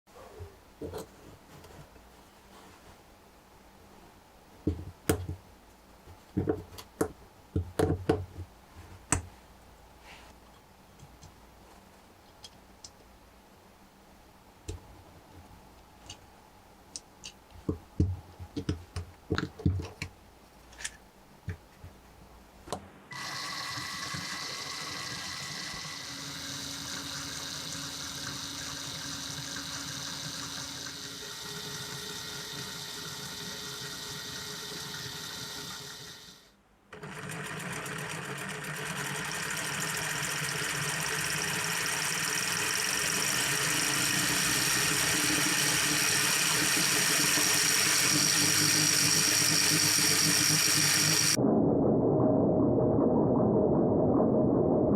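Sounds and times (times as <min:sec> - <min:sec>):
model engine whirring: 0:23.1 - 0:36.4, 0:37.0 - 0:51.4.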